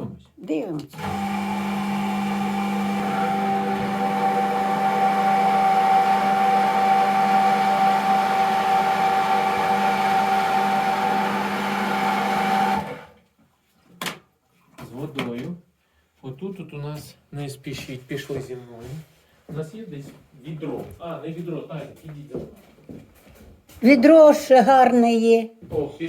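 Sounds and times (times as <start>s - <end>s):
electric water pump humming: 0.9s - 13.2s.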